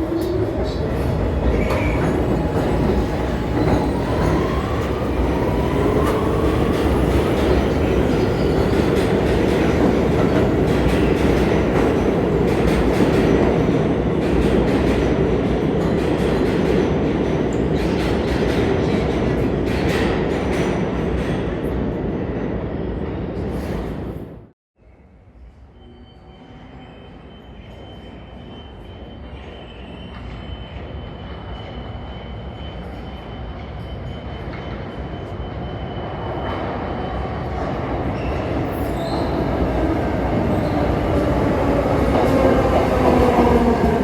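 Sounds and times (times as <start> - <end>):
subway train rumbling on rails: 0.0 - 44.0.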